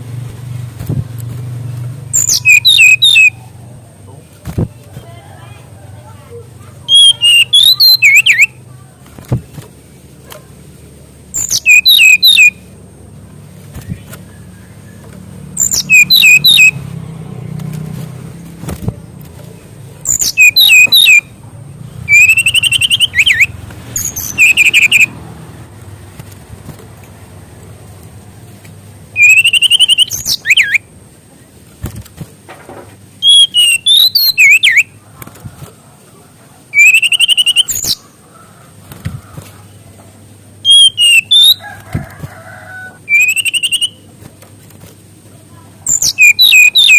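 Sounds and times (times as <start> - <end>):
bird singing whistled notes: 2.1 - 3.4, 6.9 - 8.6, 11.3 - 12.6, 15.6 - 16.8, 20.0 - 21.3, 22.1 - 25.1, 29.1 - 30.9, 33.2 - 34.9, 36.7 - 38.0, 40.6 - 41.6, 43.1 - 44.0, 45.9 - 46.9.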